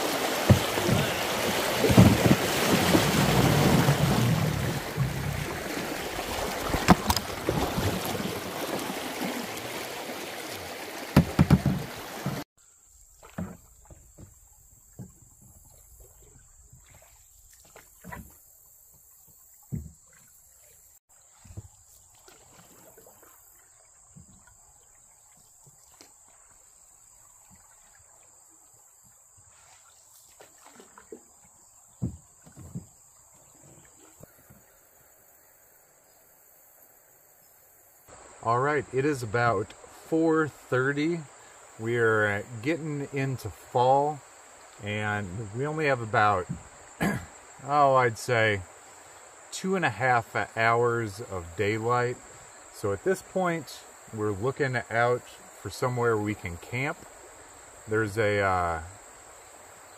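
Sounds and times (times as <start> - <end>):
canoe knocking: 0.0 - 9.3, 11.0 - 12.4, 13.2 - 16.3, 18.9 - 20.3, 21.3 - 23.2, 30.2 - 34.8, 45.8 - 47.4
rushing river water: 0.0 - 12.5, 19.3 - 35.1, 38.1 - 59.9
crickets droning: 0.0 - 59.9
soft knocks: 0.4 - 2.5, 11.2 - 12.4, 32.0 - 33.0.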